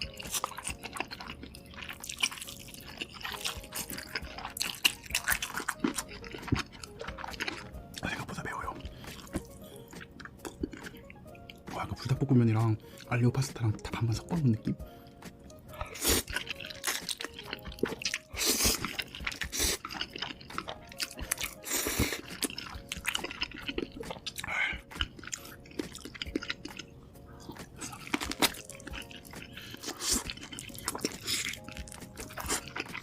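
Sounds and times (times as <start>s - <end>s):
crunchy bites: 0.0s - 7.7s, 15.8s - 33.0s
wet chewing: 0.0s - 8.1s, 8.7s - 11.7s, 15.4s - 33.0s.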